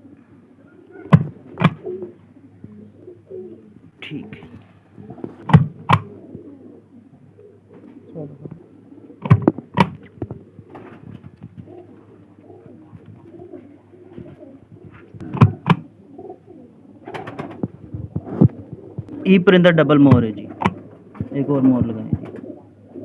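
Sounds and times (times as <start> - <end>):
pigeons cooing: 0.0 - 23.0
sharp knocks: 5.4 - 6.1.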